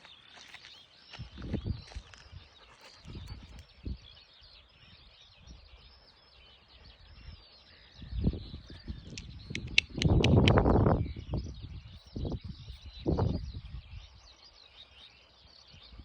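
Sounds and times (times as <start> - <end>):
small birds chirping: 0.0 - 16.0
sharp clicks: 9.1 - 10.8.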